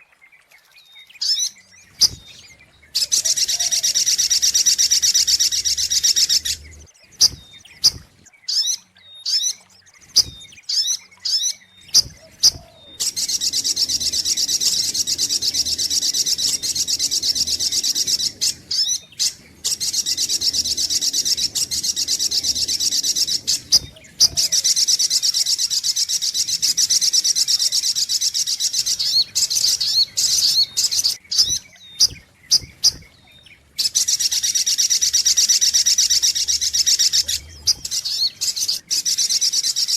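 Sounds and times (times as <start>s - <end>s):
bird chattering chirps: 1.2s - 39.9s.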